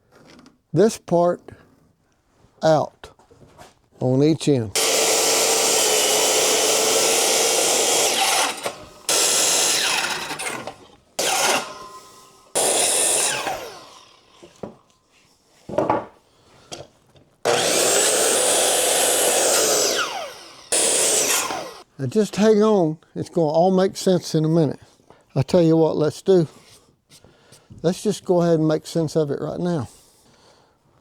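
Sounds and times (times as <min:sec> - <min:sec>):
power saw cutting wood: 0:04.8 - 0:14.8, 0:17.4 - 0:21.9.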